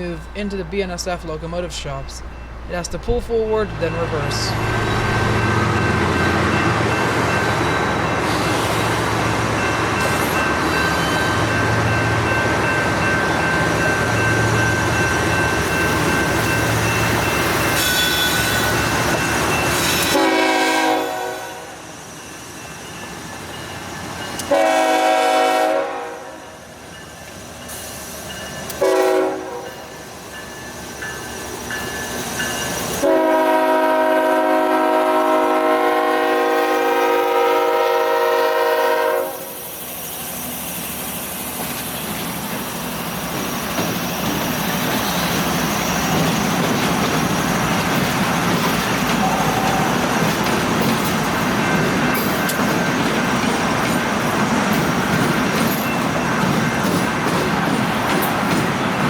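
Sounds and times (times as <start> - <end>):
moving locomotive rumble: 0.0 - 59.0
diesel locomotive horn blasts: 20.1 - 21.8, 24.4 - 26.5, 28.8 - 29.8, 33.0 - 39.5, 49.2 - 50.1.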